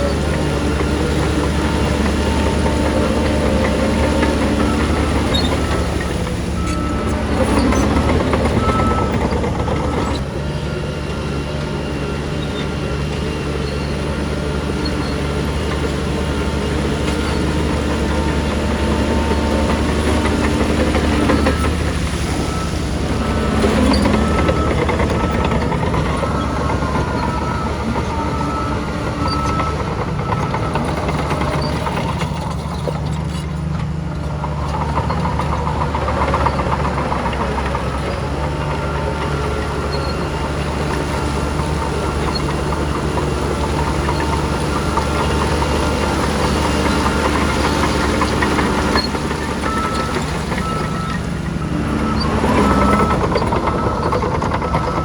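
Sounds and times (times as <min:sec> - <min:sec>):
metallic squeals: 0:00.0 - 0:10.2, 0:12.3 - 0:33.7, 0:38.8 - 0:55.0
diesel machinery engine drone: 0:00.0 - 0:55.0.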